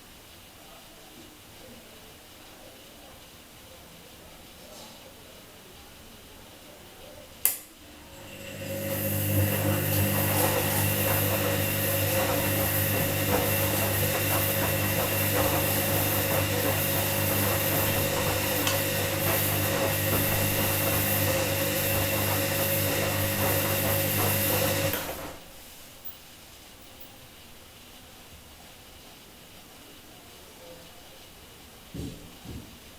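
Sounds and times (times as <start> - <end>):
washing machine humming: 2.6 - 32.9
washing machine click: 9.4 - 25.4.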